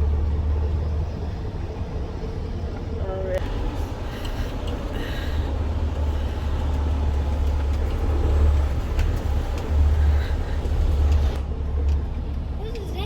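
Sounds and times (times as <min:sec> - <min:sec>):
truck diesel engine rumbling: 0:00.0 - 0:13.0.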